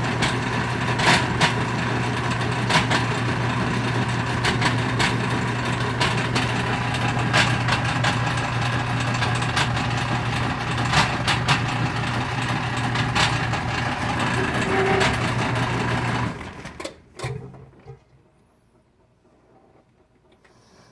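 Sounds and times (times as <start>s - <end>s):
washing machine motor hum: 0.0s - 19.1s
washing machine clacks and pops: 4.2s - 16.0s.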